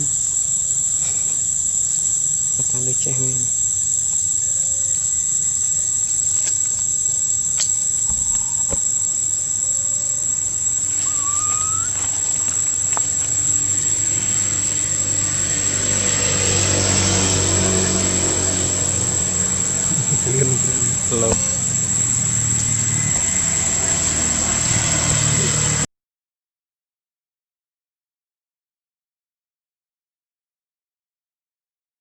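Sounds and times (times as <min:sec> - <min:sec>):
insects droning: 0:00.0 - 0:25.9
passing motor vehicle hum: 0:08.2 - 0:25.9
short rising chirp: 0:09.8 - 0:15.9.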